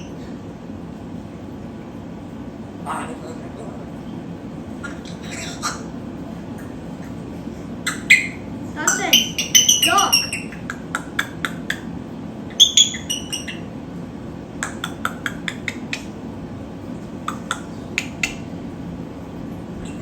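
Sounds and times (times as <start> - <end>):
bird chirping and clicking: 7.8 - 11.9, 12.5 - 13.7, 14.6 - 16.2, 17.3 - 18.5.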